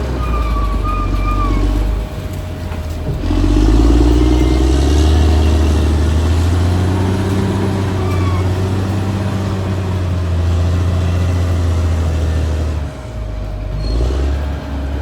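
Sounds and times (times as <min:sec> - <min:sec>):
faint high squeal: 0:00.0 - 0:11.9
bulldozer diesel engine under load: 0:00.0 - 0:15.0.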